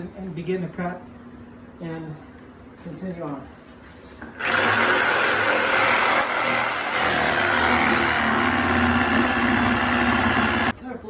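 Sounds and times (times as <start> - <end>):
reciprocating saw cutting wood: 4.4 - 10.7.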